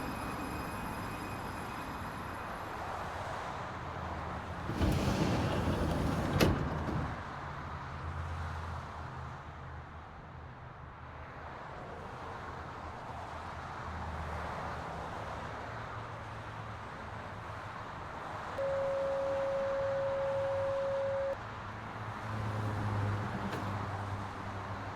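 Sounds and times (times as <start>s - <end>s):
metro train humming: 0.0s - 6.5s, 18.6s - 21.4s.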